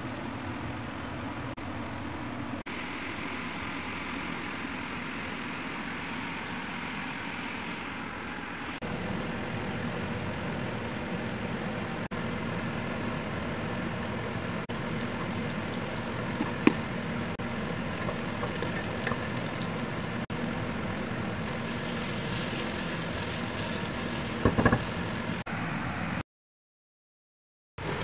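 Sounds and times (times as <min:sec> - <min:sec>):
food sizzling in a pot: 0:14.7 - 0:20.3, 0:21.4 - 0:25.4
wooden spatula knocking pot: 0:24.4 - 0:24.9.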